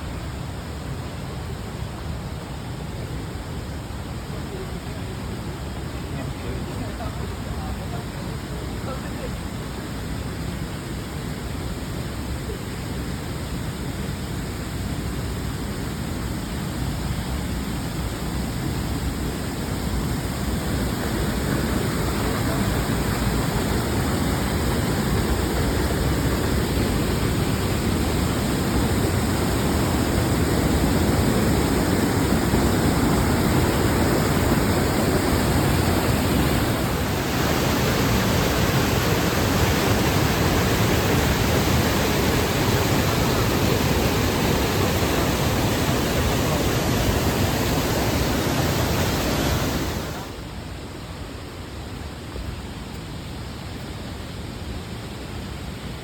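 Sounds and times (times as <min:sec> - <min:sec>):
wind roaring over microphone: 0:14.4 - 0:51.9.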